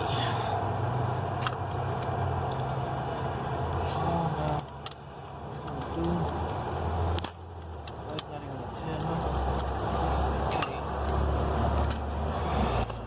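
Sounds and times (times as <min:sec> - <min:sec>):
hand tools clicking against metal: 0:05.6 - 0:09.8.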